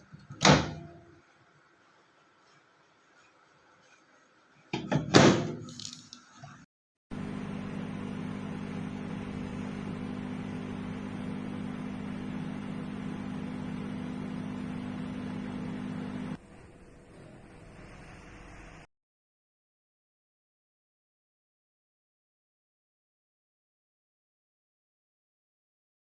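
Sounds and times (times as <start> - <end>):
microwave oven humming: 0.0 - 1.4, 7.1 - 18.9.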